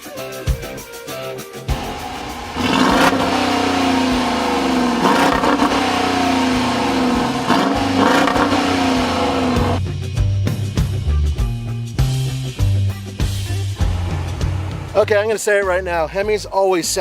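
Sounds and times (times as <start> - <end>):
vehicle engine at full throttle: 1.7 - 9.8, 13.8 - 15.0.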